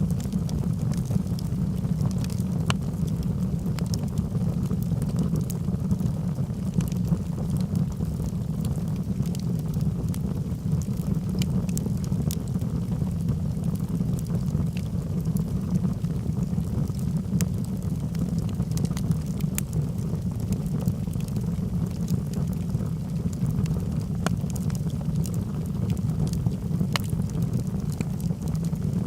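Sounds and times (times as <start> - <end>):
fire crackling and popping: 0.0 - 29.0
fire flames rumbling: 0.0 - 29.0.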